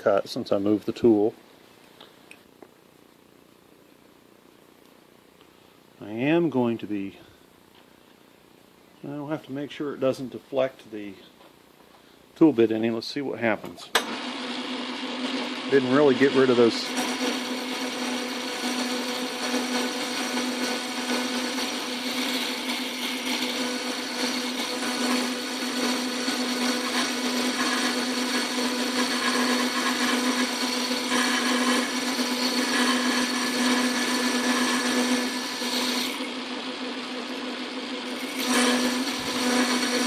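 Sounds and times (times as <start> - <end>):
metal lathe motor hum: 14.0 - 40.0
tool bit cutting metal: 16.8 - 36.3, 38.1 - 40.0.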